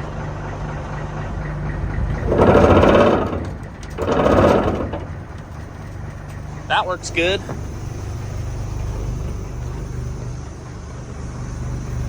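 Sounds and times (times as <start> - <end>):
truck bed shaker buzzing: 0.0 - 12.0
truck engine idling: 0.0 - 12.0.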